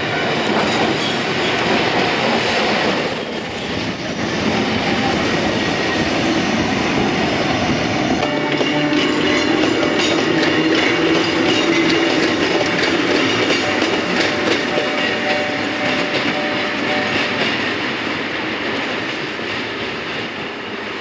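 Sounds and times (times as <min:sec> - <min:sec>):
electric railcars passing: 0:00.0 - 0:21.0
wheels clacking over rail joints: 0:08.0 - 0:20.6.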